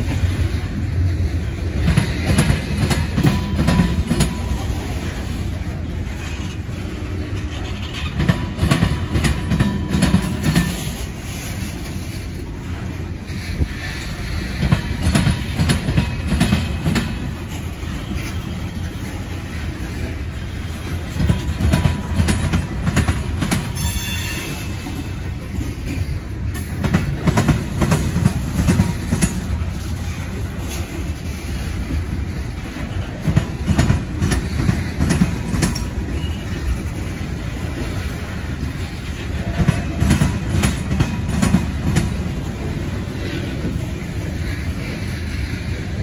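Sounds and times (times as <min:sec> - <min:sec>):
steel wheels rumbling on rail: 0:00.0 - 0:46.0
wheels clacking over rail joints: 0:00.0 - 0:46.0
high wheel squeal: 0:23.7 - 0:24.9.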